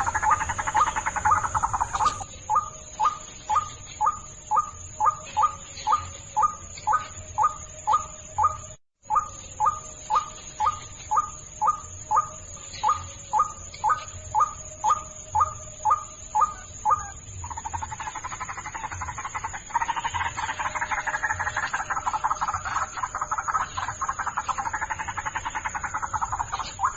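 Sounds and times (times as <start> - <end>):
waterhen calling: 0.0 - 2.3.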